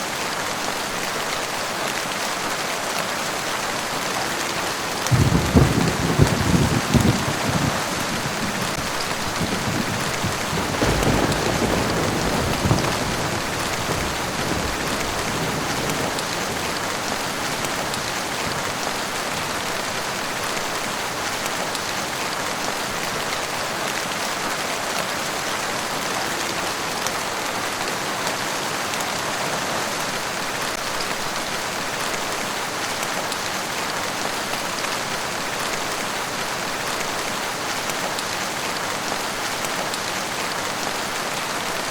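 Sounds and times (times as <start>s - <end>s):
steady rain pattering: 0.0s - 41.9s
low rumble of thunder: 5.1s - 18.8s.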